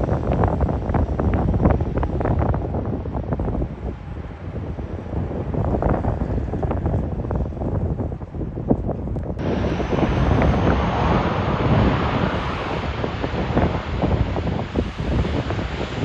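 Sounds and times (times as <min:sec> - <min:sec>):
wind buffeting microphone: 0:00.0 - 0:16.0
aircraft engines rushing: 0:09.4 - 0:16.0.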